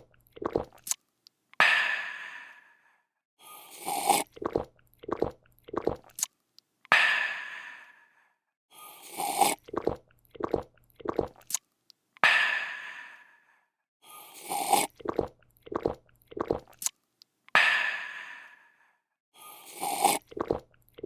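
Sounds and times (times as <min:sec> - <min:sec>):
person gulping: 0:00.0 - 0:00.9, 0:03.8 - 0:06.2, 0:09.2 - 0:11.6, 0:14.4 - 0:16.8, 0:19.8 - 0:21.0
person slurping a drink: 0:00.0 - 0:01.0, 0:03.6 - 0:06.3, 0:08.9 - 0:11.6, 0:14.2 - 0:16.9, 0:19.5 - 0:21.0.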